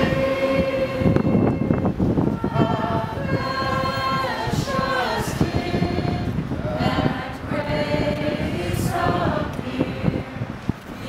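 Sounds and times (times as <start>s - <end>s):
group singing a hymn: 0.0s - 11.0s
wind rumbling on microphone: 0.0s - 11.0s.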